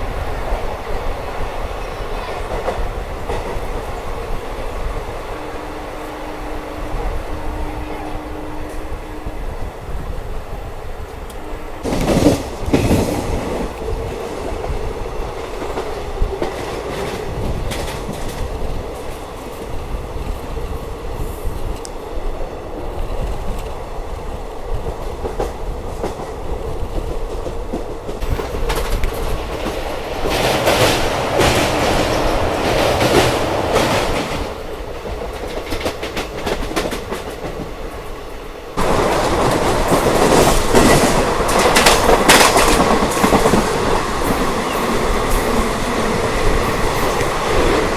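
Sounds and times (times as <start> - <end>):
train running on rails: 0.0 - 47.9
wheels clicking over rail joints: 22.8 - 47.9.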